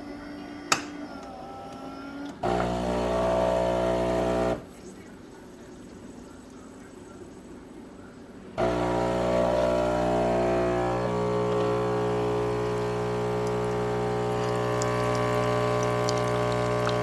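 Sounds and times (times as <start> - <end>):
espresso machine pump humming: 2.4 - 6.9, 8.6 - 17.0
liquid dripping: 12.5 - 17.0.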